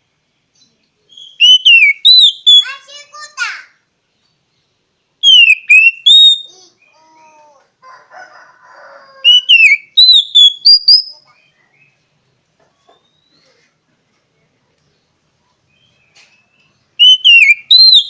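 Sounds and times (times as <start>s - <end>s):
bird singing whistled notes: 0.5s - 2.7s, 5.2s - 7.0s, 9.2s - 12.0s, 12.8s - 13.5s, 15.7s - 18.0s.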